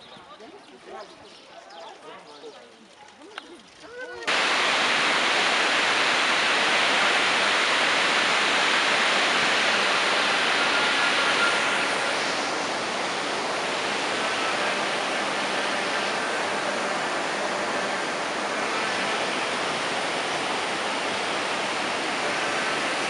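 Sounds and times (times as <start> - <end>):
rushing water: 4.3 - 23.0.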